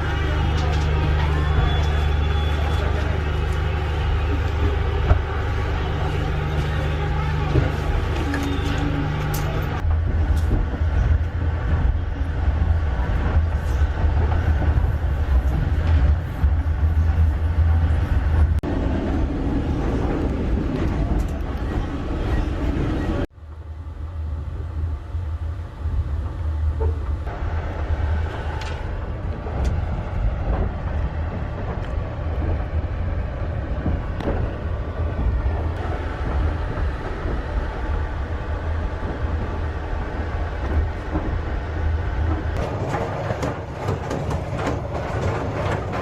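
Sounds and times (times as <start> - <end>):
train wheels clicking and knocking: 0.0 - 18.6, 28.1 - 46.0
train rumbling on rails: 0.0 - 46.0.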